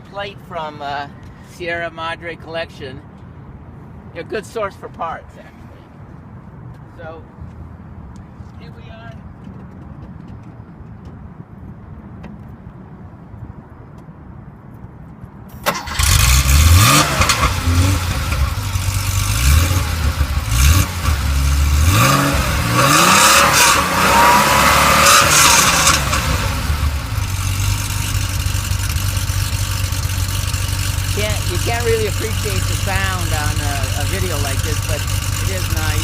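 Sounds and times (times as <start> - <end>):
car engine starting and revving: 15.6 - 36.0
car engine idling: 15.7 - 36.0.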